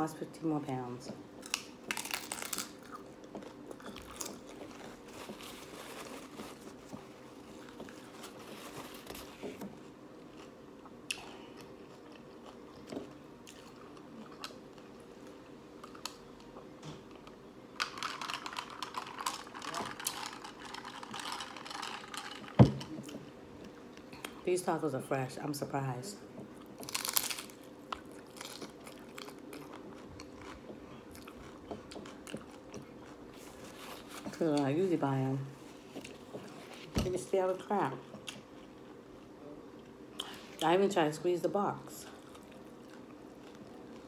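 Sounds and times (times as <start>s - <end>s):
hard taco crunching: 1.4s - 23.2s, 26.6s - 34.2s.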